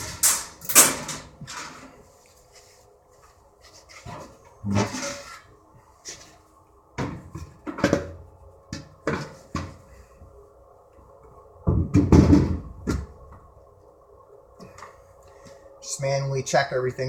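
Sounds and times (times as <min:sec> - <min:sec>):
metal parts knocking and clunking: 0:00.0 - 0:01.9.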